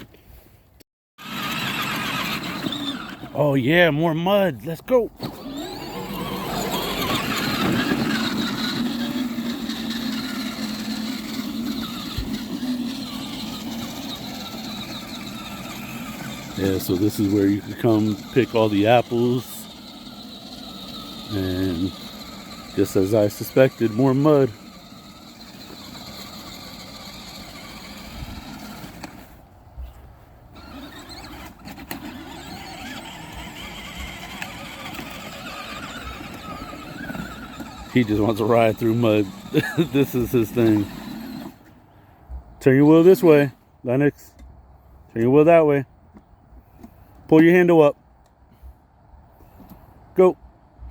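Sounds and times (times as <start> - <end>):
toy truck electric motor whining: 1.2 - 3.4, 5.2 - 29.5, 30.6 - 41.8.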